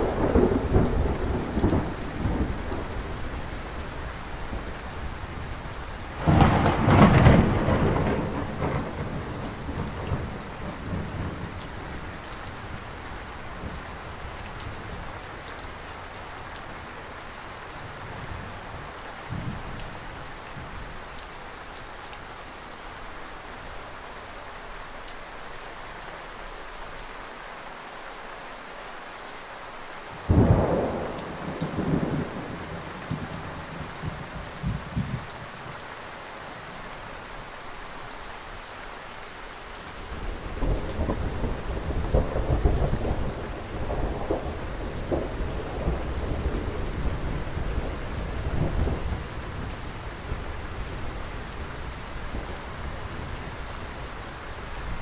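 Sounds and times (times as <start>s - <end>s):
thunder rumbling: 0.0s - 3.5s, 4.1s - 11.6s, 30.3s - 35.4s, 40.1s - 51.0s
steady rain: 0.0s - 55.0s.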